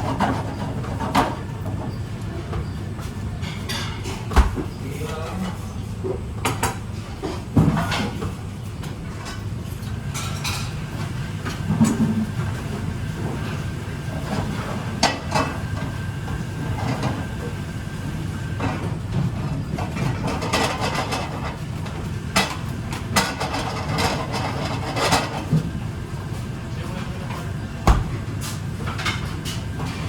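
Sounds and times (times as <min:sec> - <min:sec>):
kitchen background hum: 0:00.0 - 0:30.0
dishes and pans clattering: 0:22.4 - 0:25.7.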